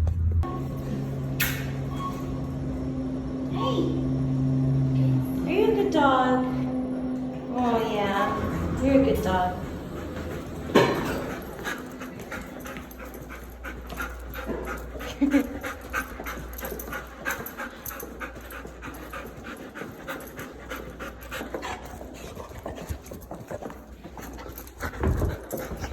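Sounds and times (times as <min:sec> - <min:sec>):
puppy panting: 0:07.9 - 0:25.9.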